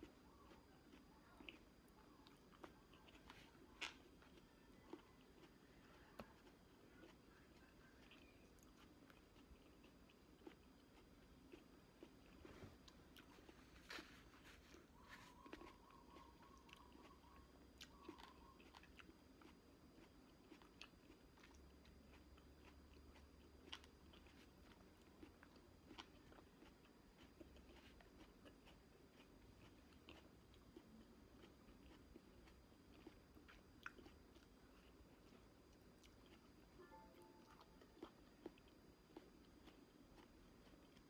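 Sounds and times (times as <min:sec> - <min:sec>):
person chewing fruit: 0:00.0 - 0:41.0.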